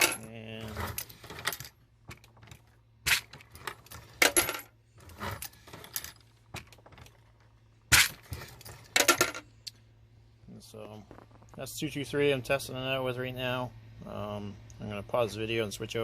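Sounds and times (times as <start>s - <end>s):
brass cases clinking and dropping: 0.0s - 9.5s.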